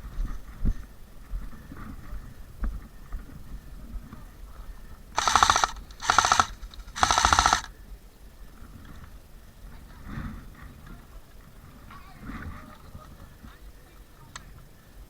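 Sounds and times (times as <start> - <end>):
airsoft gun bursts: 5.2 - 7.8.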